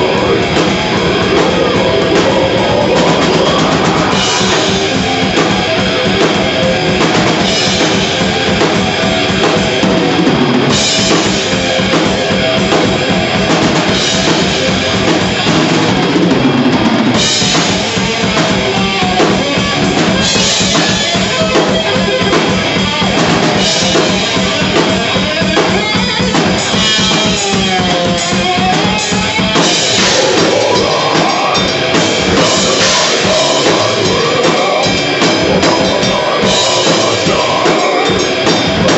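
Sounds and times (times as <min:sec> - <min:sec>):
distorted electric guitars: 0:00.0 - 0:38.9
rapid drum strokes: 0:00.0 - 0:38.9.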